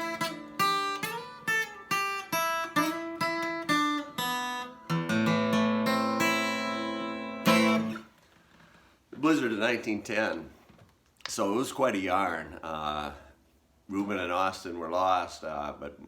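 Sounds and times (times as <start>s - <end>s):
acoustic guitar playing: 0.0s - 8.2s.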